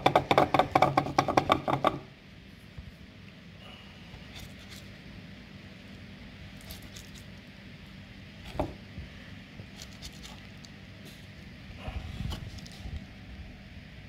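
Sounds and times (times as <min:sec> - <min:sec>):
knock: 0:00.0 - 0:02.0
low steady hum: 0:00.0 - 0:14.0.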